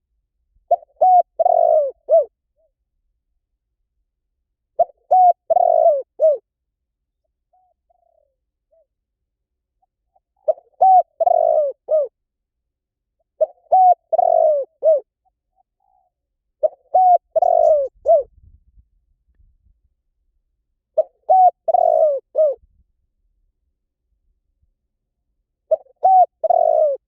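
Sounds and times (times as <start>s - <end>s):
dove cooing: 0.7s - 2.7s, 4.8s - 6.4s, 7.5s - 8.9s, 9.8s - 12.2s, 13.4s - 18.3s, 21.0s - 22.6s, 25.7s - 27.0s.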